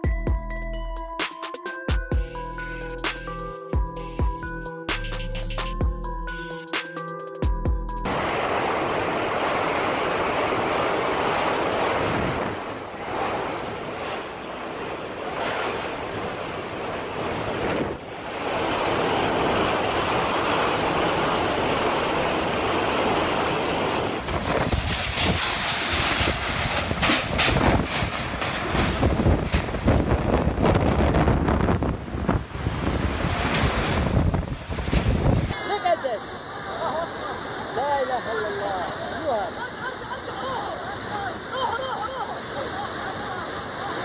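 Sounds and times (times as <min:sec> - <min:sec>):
rough water rushing: 0:08.0 - 0:44.0
wind buffeting microphone: 0:23.3 - 0:35.6.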